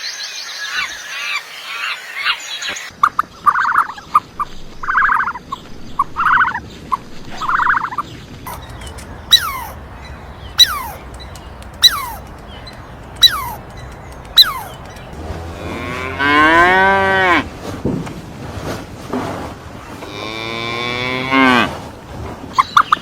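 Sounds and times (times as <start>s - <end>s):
short sharp falling calls: 8.5s - 15.1s
cow mooing: 15.1s - 17.5s, 20.0s - 21.8s.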